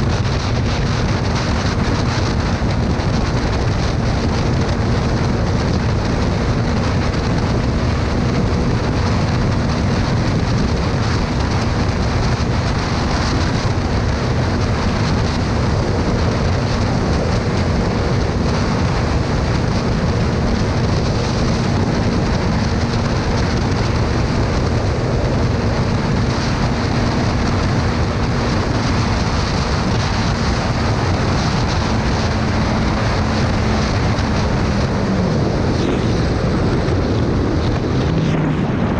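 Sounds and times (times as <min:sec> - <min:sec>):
motorcycle engine drone: 0:00.0 - 0:38.9
wind rush on microphone: 0:00.0 - 0:38.9.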